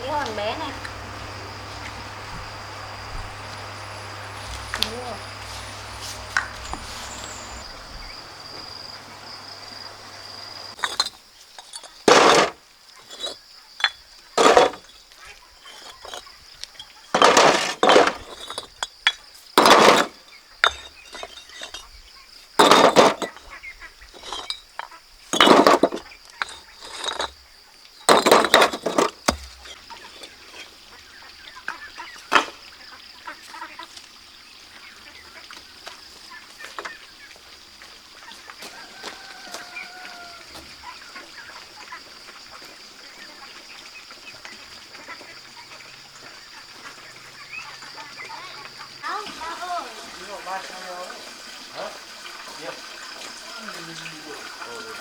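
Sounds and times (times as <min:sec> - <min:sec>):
high thin hum: 0:00.0 - 0:10.8
stones clinking and scraping: 0:03.4 - 0:08.4, 0:10.7 - 0:22.0, 0:22.6 - 0:23.4, 0:24.1 - 0:27.4, 0:28.1 - 0:30.7.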